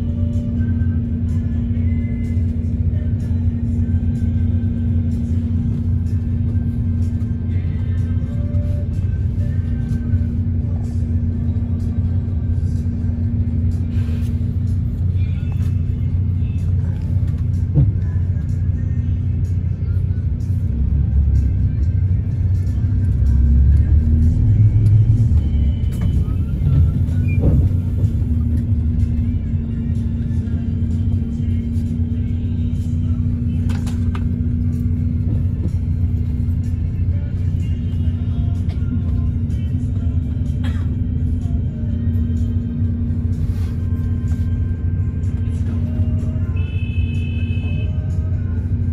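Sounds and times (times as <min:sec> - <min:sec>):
bus engine and road noise: 0:00.0 - 0:48.9
constant steady hum: 0:00.0 - 0:48.9
bus bump: 0:17.3 - 0:18.2, 0:25.8 - 0:28.6.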